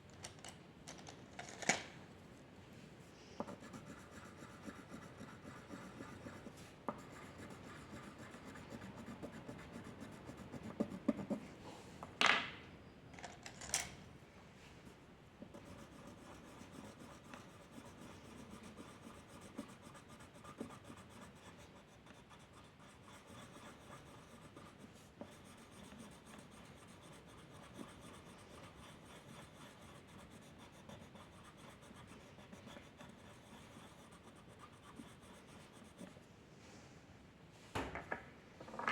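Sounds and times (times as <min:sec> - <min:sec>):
drawing tool scratching on paper: 0:03.4 - 0:11.4, 0:15.4 - 0:36.2.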